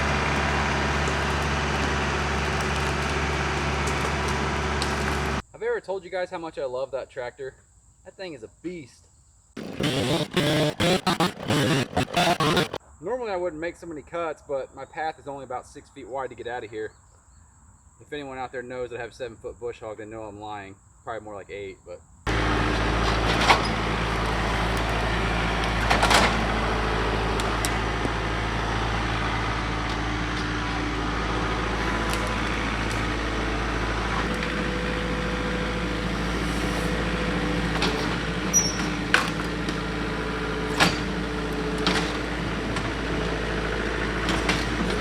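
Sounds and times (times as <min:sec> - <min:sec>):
mower cutting brush: 0:00.0 - 0:05.4, 0:09.6 - 0:12.8, 0:22.3 - 0:45.0
tractor diesel engine under load: 0:00.0 - 0:05.4, 0:09.6 - 0:12.8, 0:22.3 - 0:45.0
sharp cracks and knocks: 0:00.1 - 0:05.4.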